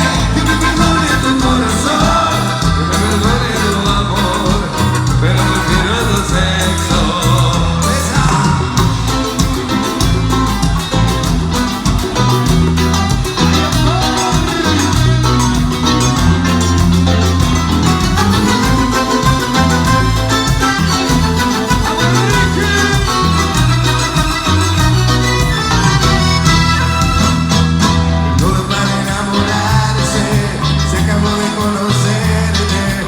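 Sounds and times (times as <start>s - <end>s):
instrumental dance band music: 0.0s - 33.0s.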